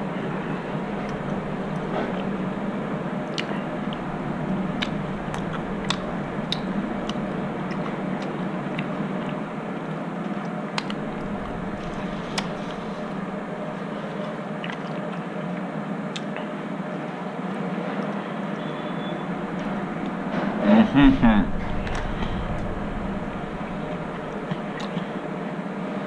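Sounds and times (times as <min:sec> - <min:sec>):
low background hum: 0:00.0 - 0:26.0
person chewing with wet smacks: 0:04.8 - 0:09.4, 0:11.7 - 0:13.1, 0:14.6 - 0:16.5.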